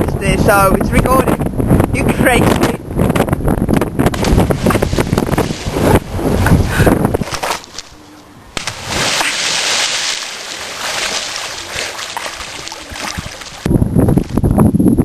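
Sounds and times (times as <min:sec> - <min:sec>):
body splashing into water: 0:08.6 - 0:13.7
water sloshing and churning: 0:08.6 - 0:14.4.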